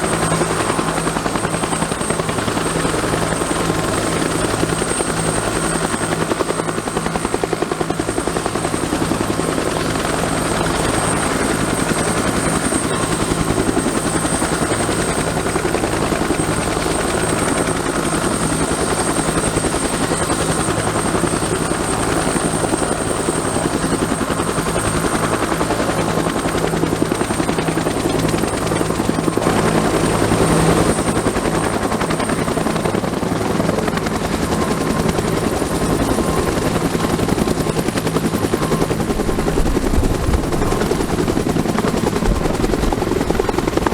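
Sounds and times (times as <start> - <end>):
helicopter rotors throbbing: 0.0 - 43.9
turbine engine whine: 36.0 - 43.9.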